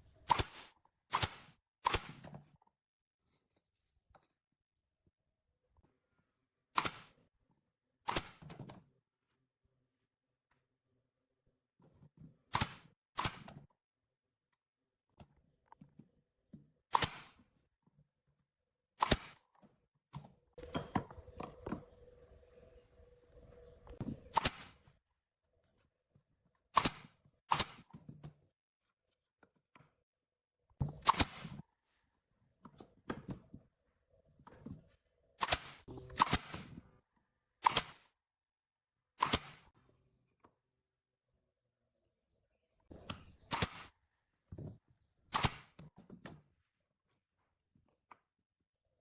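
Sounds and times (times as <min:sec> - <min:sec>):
wooden parts and tools knocking: 0:20.6 - 0:22.1.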